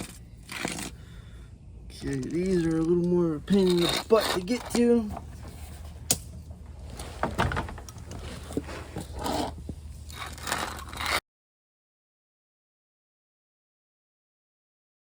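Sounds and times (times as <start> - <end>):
grease gun scraping and clicking: 0.0 - 1.0, 1.9 - 5.0.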